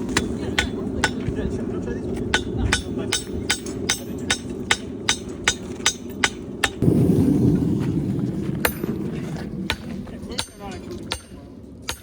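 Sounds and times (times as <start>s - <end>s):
hammer striking on anvil: 2.3s - 6.8s
low rushing noise: 6.8s - 10.3s.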